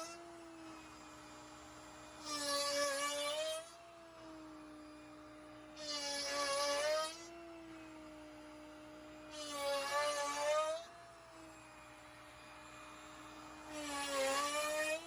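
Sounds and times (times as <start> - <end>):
router bit rasping into wood: 0.0 - 3.7, 5.6 - 7.5, 8.6 - 15.0
router spindle high whine: 0.0 - 15.0.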